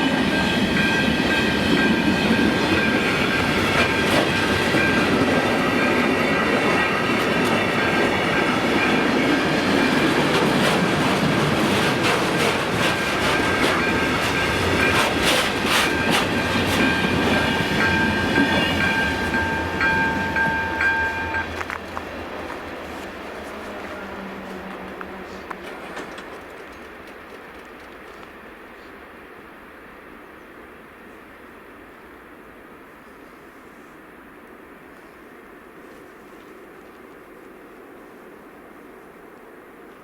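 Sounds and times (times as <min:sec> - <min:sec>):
train wheels rumbling and clicking: 0:00.0 - 0:28.9
thin high tone: 0:15.8 - 0:21.8.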